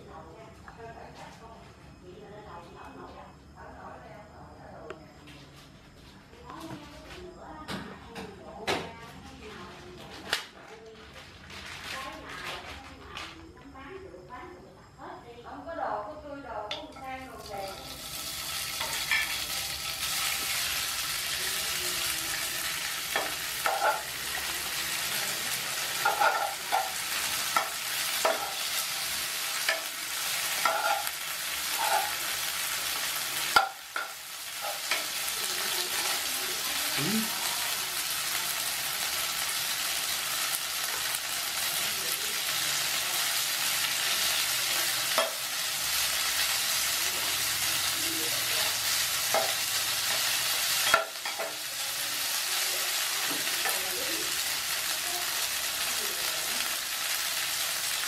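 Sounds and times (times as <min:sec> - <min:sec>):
noodles sizzling in a pan: 0:16.9 - 0:58.0
spatula scraping and tapping pan: 0:18.7 - 0:19.4, 0:23.0 - 0:24.5, 0:25.9 - 0:32.3, 0:33.4 - 0:35.3, 0:45.1 - 0:45.5, 0:49.2 - 0:51.6
sharp knocks against a pan: 0:33.5 - 0:34.2.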